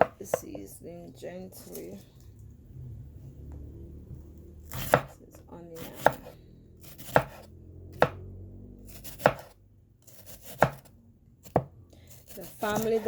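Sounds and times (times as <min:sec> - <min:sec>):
knife chopping on cutting board: 0:00.0 - 0:00.4, 0:04.7 - 0:05.1, 0:05.8 - 0:08.2, 0:08.9 - 0:13.0.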